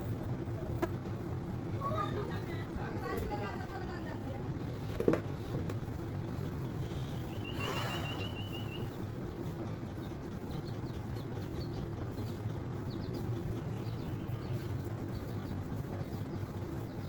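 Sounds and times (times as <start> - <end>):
steady low rumble: 0.0 - 17.0
faint high bird chirps: 6.8 - 9.1.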